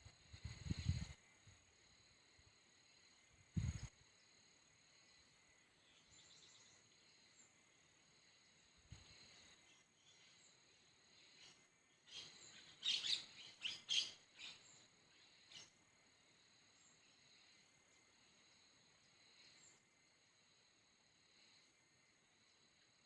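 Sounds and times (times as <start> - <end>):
insect drone: 0.0 - 23.0
bird calling: 12.1 - 14.8.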